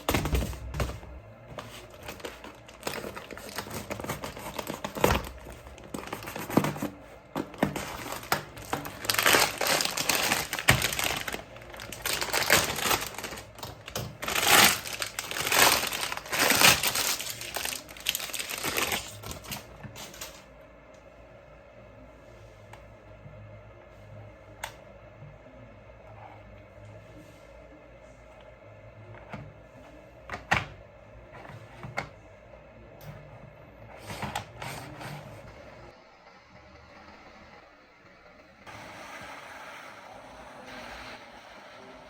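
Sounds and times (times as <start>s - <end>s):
packaging crinkling: 1.5s - 20.4s.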